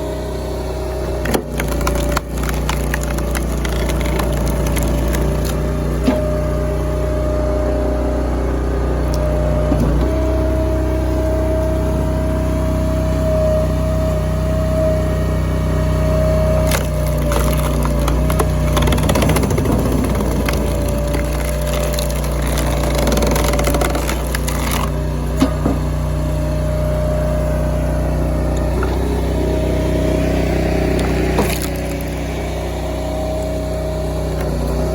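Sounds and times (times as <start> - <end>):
log splitter engine whining: 0.0 - 34.9
wood cracking and splintering: 1.2 - 6.3, 16.6 - 25.9, 30.8 - 32.6.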